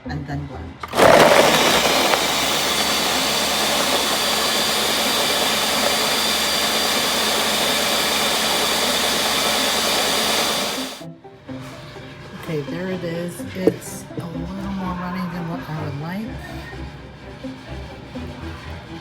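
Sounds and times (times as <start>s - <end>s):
blender whirring: 0.8s - 11.0s.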